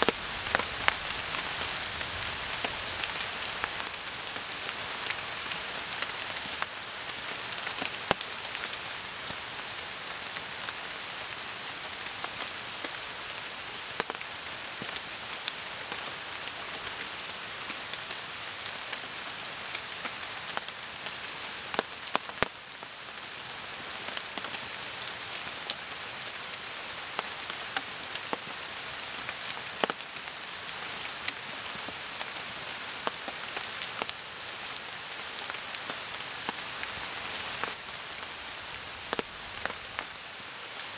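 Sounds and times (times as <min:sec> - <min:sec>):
campfire crackling: 0:00.0 - 0:09.2
rain falling on a tarp: 0:00.0 - 0:40.9.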